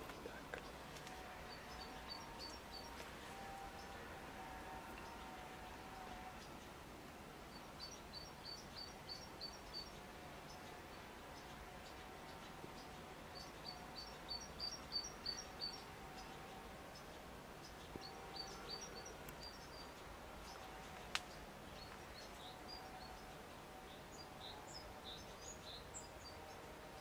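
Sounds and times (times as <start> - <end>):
small bird chirping: 7.5 - 23.3.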